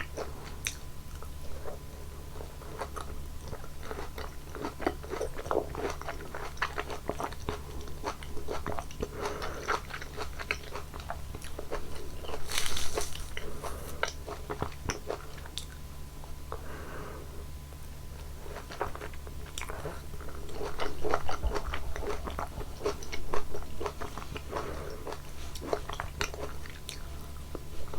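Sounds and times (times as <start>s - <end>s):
biting and chewing fruit: 0.0s - 15.9s, 17.8s - 27.9s
loud crunchy bite: 11.7s - 14.2s.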